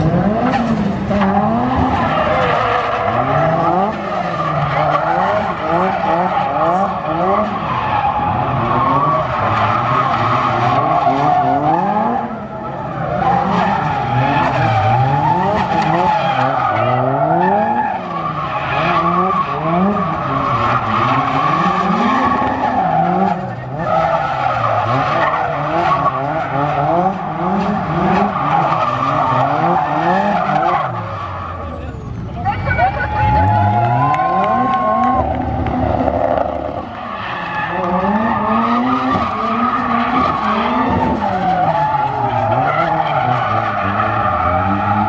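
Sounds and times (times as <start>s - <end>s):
car engine revving hard: 0.0s - 2.4s, 3.0s - 31.0s
tyres squealing and skidding: 0.0s - 45.0s.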